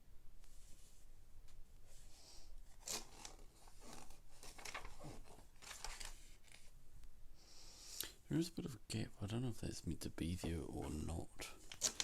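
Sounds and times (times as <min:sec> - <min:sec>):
plastic pieces clicking and rustling: 0:11.6 - 0:12.0.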